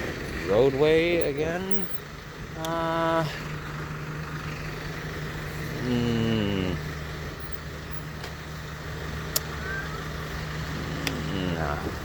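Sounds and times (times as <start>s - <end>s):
road traffic engine hum: 0.0s - 12.0s
sharp click: 9.3s - 9.5s.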